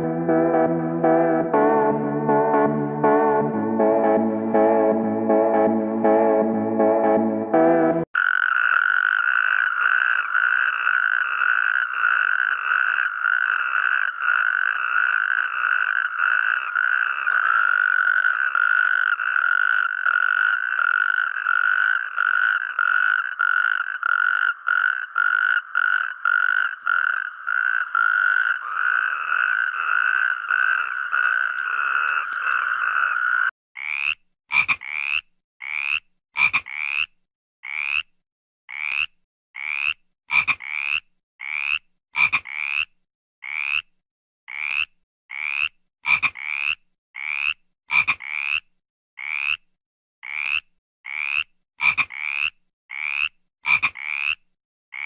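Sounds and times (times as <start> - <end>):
frog chorus droning: 8.2 - 37.0
short rising frog calls: 8.2 - 37.1.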